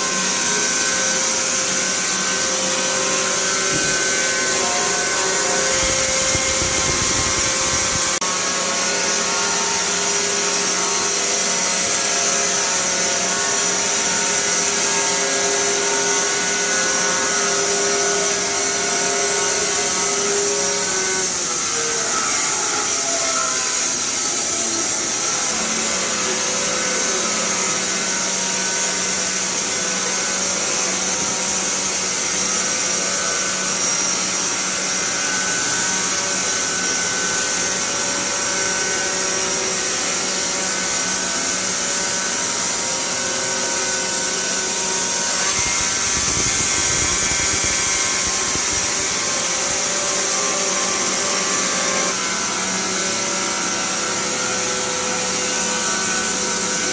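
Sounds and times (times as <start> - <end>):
band sawmill whine: 3.5 - 8.2.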